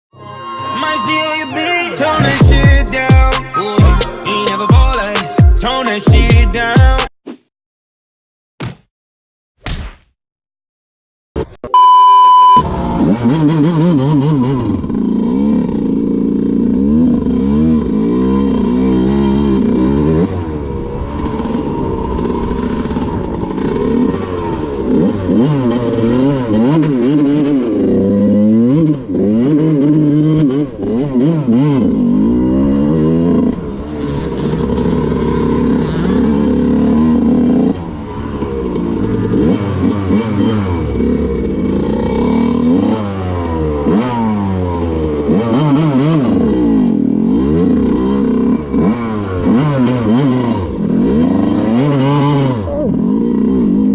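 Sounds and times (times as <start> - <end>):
dirt bike engine revving: 12.4 - 53.9.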